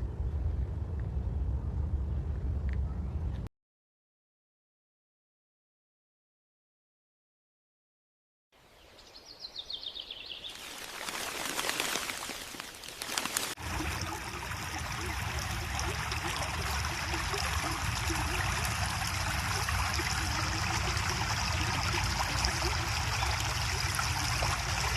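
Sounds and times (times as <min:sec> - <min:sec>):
running water: 0:10.5 - 0:24.9.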